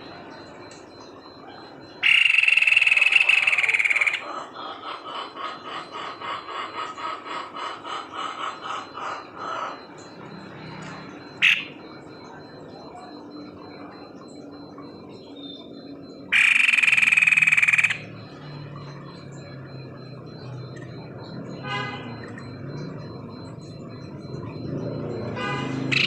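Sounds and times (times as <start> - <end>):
bird calling: 0.0 - 26.0
rapid rattling bird call: 1.2 - 10.2, 16.3 - 18.6.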